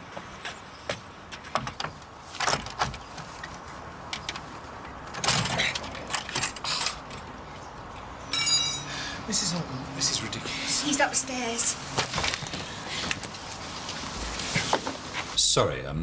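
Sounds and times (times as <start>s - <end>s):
shutters clicking and knocking: 1.3s - 8.8s, 11.8s - 13.6s
window scraping rattle: 1.5s - 7.3s, 10.8s - 15.4s.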